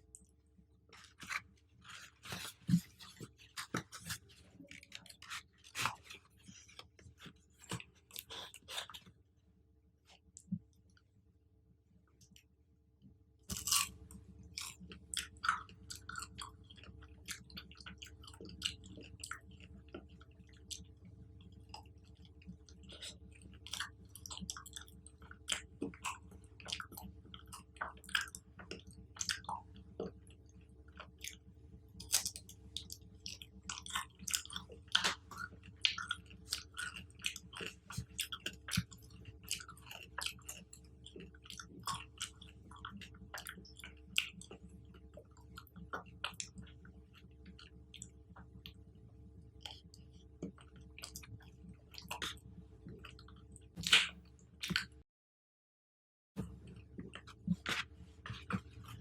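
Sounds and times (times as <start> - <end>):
chewing with crackling clicks: 13.5 - 55.0, 56.4 - 59.0.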